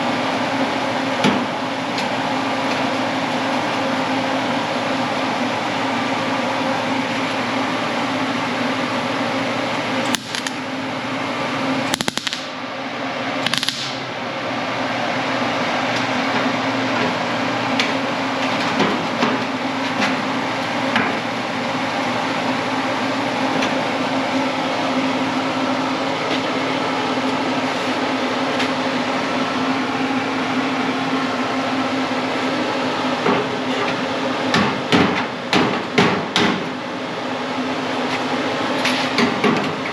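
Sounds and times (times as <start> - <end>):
sharp clicks: 10.1 - 10.6, 11.9 - 12.6, 13.5 - 14.0
electric welder hissing and crackling: 10.1 - 10.7, 11.9 - 12.6, 13.4 - 14.2.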